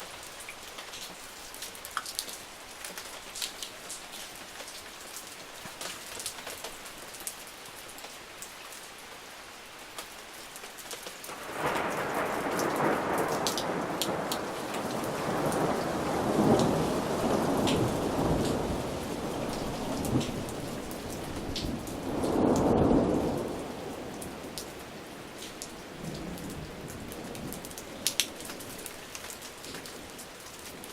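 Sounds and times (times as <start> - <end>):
steady rain: 0.0 - 30.9
raindrops ticking sharply: 10.8 - 24.8, 25.4 - 30.9
thunder rolling: 11.4 - 23.8.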